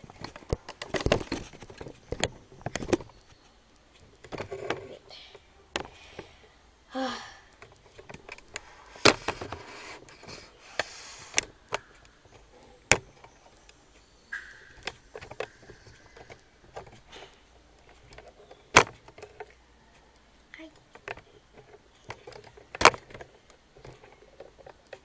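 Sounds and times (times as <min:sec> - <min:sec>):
handling knocks and clicks: 0:00.0 - 0:04.9, 0:07.5 - 0:20.0, 0:20.7 - 0:25.0
rubbing noise: 0:08.6 - 0:11.4.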